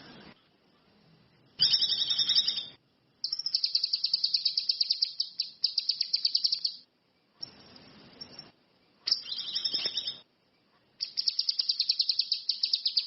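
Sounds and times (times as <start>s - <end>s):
songbird fast high trill: 1.6s - 6.8s, 9.1s - 10.2s, 11.0s - 13.0s
songbird two-toned call: 1.6s - 10.3s, 11.0s - 13.0s.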